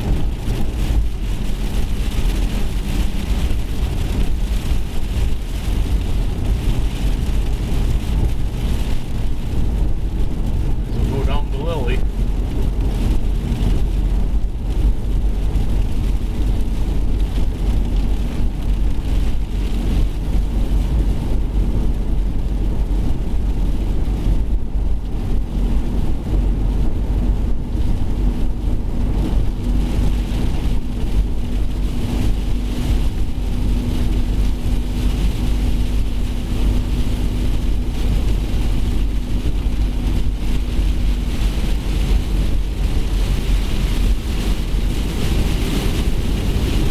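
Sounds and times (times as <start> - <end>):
storm wind buffeting microphone: 0.0 - 46.9.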